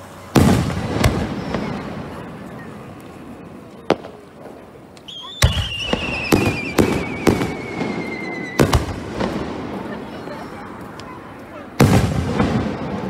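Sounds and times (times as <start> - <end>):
firework bangs: 0.2 - 13.0
firework whistle falling in pitch: 5.1 - 8.8.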